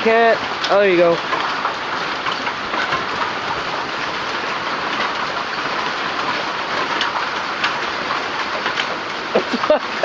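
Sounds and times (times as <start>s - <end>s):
hailstones clattering: 0.0s - 10.0s.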